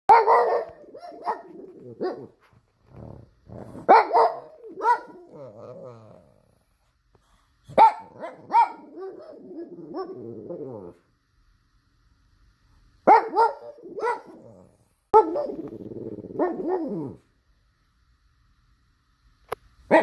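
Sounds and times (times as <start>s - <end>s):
dog barking and grumbling: 0.1s - 6.8s, 7.7s - 11.0s, 13.1s - 17.3s.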